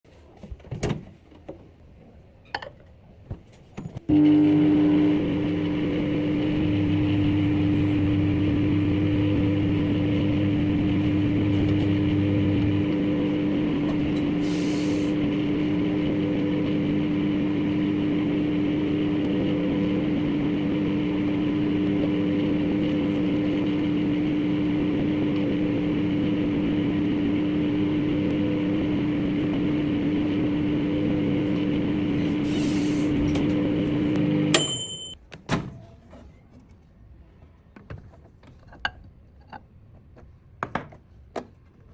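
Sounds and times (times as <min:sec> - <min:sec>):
microwave oven humming: 0:04.0 - 0:35.2
microwave beep: 0:33.3 - 0:35.2.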